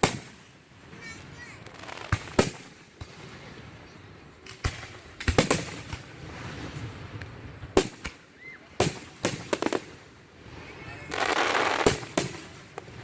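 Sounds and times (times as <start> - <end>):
fireworks bangs: 0.0 - 8.2, 8.8 - 13.0.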